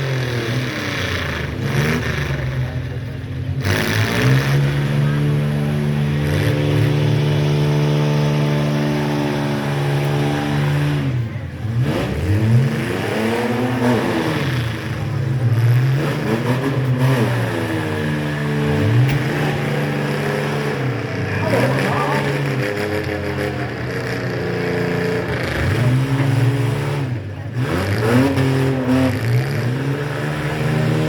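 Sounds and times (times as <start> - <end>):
truck engine revving: 0.0 - 31.0.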